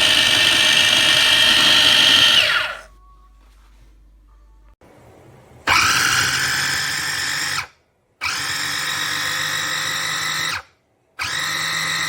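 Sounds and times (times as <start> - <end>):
mini chopper motor whining: 0.0 - 2.9.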